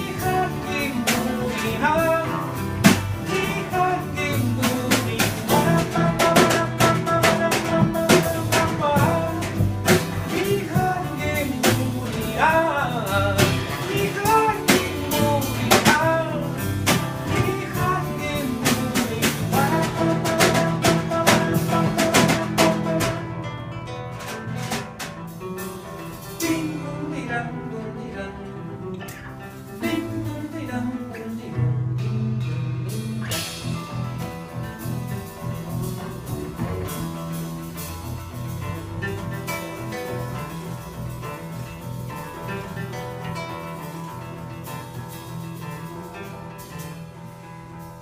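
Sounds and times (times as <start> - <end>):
person singing: 0.0 - 23.2, 26.4 - 33.7
live band playing: 0.0 - 48.0.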